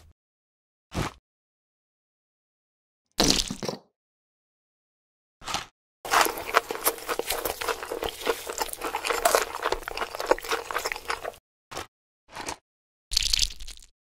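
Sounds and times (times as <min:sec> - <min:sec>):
crunching and chewing fried food: 0:05.5 - 0:13.9.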